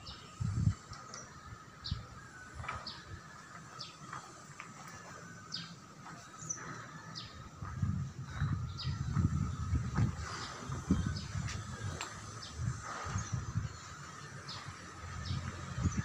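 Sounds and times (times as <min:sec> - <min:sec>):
small birds chirping: 0:00.0 - 0:16.0
low rumbling bumps: 0:06.4 - 0:16.0.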